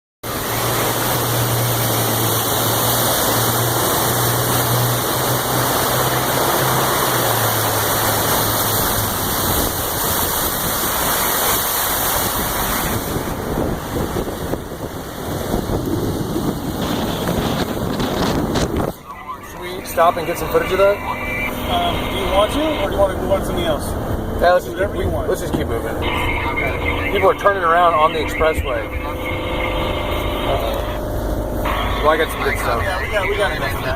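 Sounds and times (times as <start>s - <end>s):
low engine hum: 0.2s - 33.9s
vehicle driving through water: 0.2s - 33.9s.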